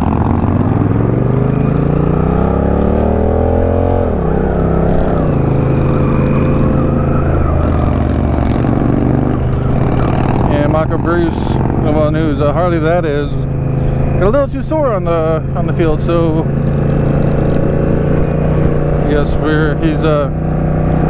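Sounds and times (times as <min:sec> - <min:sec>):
motorcycle engine accelerating: 0:00.0 - 0:21.0
transmission upshift: 0:00.0 - 0:21.0.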